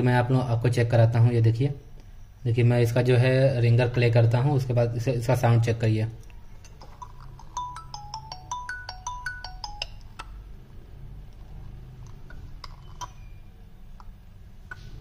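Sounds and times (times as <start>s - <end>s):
smartphone ringtone melody: 6.8s - 10.5s.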